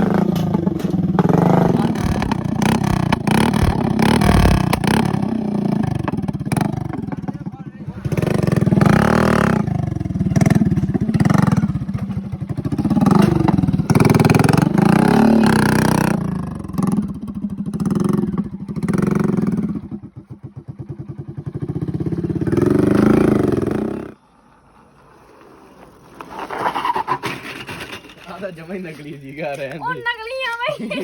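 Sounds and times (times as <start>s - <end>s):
vehicle engine revving: 0.0s - 17.1s.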